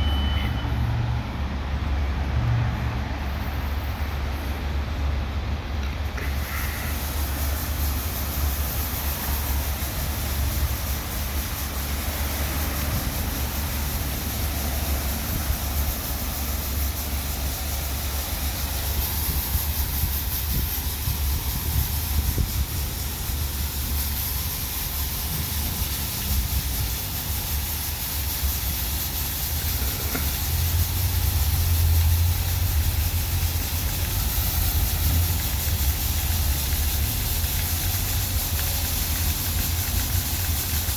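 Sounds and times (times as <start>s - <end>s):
hiss of spraying water: 0.0s - 40.9s.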